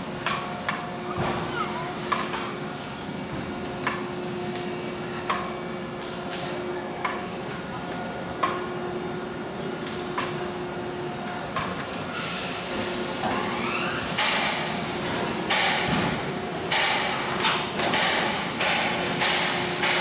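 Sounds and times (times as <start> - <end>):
steady machinery hum: 0.0 - 11.5.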